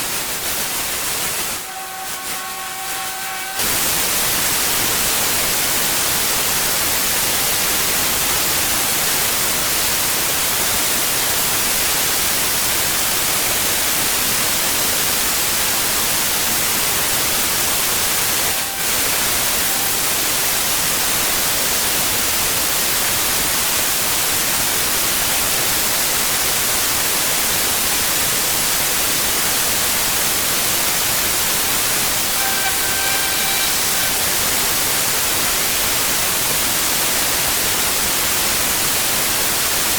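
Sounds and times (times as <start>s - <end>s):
pressure washer spraying stone: 0.0s - 6.2s.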